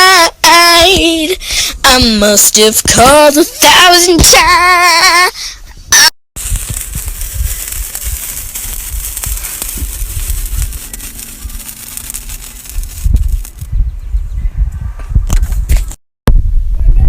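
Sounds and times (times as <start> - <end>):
fountain firework hissing: 6.4 - 13.5.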